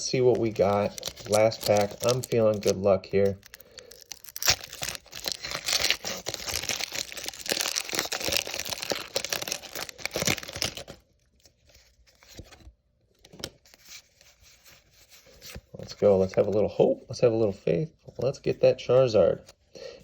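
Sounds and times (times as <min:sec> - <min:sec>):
foil wrapper tearing and crinkling: 0:00.0 - 0:11.2.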